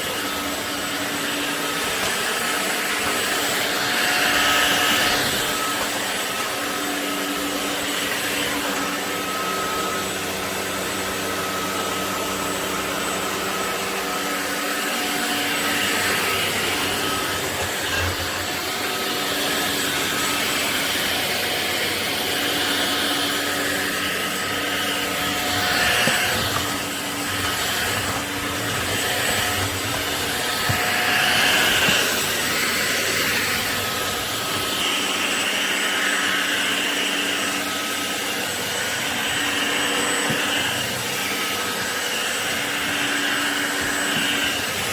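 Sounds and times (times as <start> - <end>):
stick vacuum running: 0.0 - 44.9.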